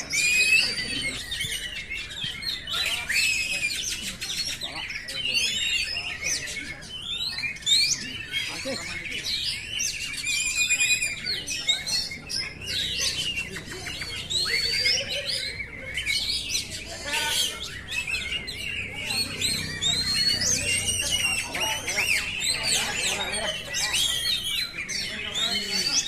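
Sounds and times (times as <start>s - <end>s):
bird singing whistles and trills: 0.0s - 26.0s.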